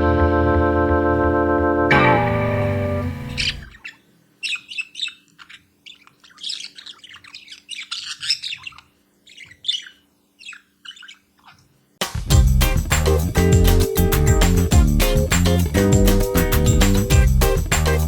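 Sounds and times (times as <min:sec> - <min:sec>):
birds chirping and twittering: 0:02.6 - 0:11.7.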